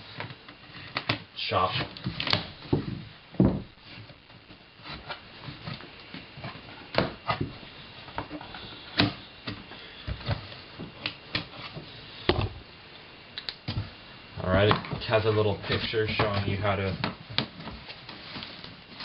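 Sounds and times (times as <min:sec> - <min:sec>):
cardboard knocks and rustles: 0:02.0 - 0:08.3.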